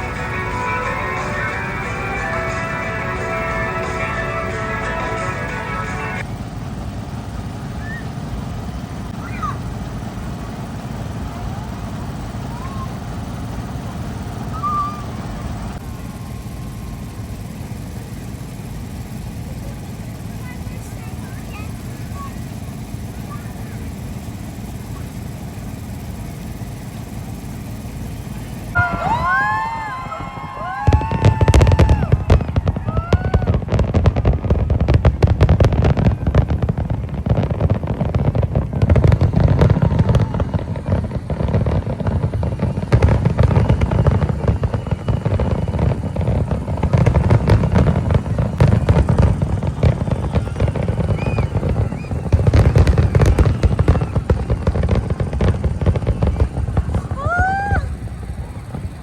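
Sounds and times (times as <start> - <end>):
rising and falling whistles: 0.0 - 6.2, 7.6 - 8.2, 14.4 - 19.0, 28.4 - 37.0, 38.7 - 54.7
fireworks bangs and crackling: 0.0 - 59.0
fireworks deep booms: 0.0 - 59.0.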